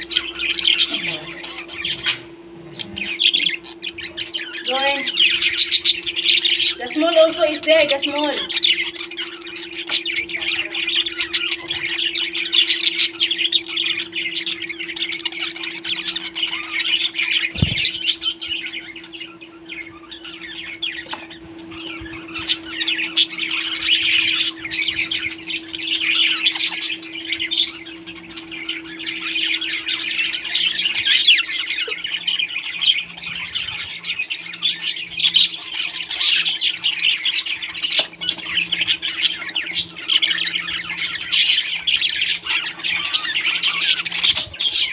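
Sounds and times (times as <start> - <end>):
parrots chirping and chattering: 0.0 - 44.9.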